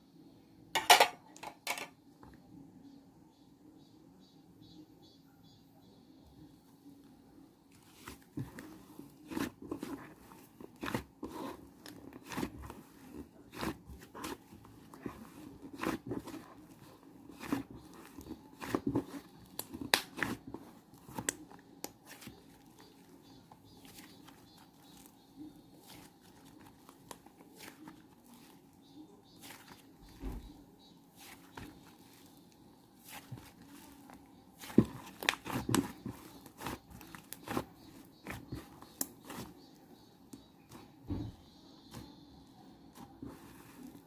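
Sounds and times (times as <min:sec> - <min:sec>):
crunching and crinkling clicks: 0:07.7 - 0:28.7, 0:31.2 - 0:40.9.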